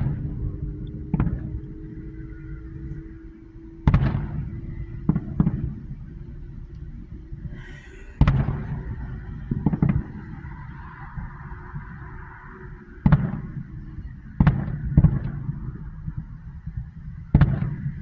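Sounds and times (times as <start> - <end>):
fireworks bangs: 0.0 - 18.0
steady low hum: 0.0 - 18.0.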